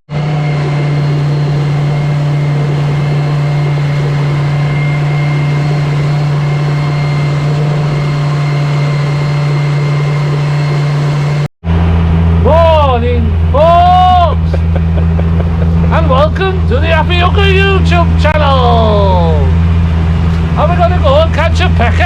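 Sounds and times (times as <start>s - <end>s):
outboard motor droning: 0.1s - 22.0s.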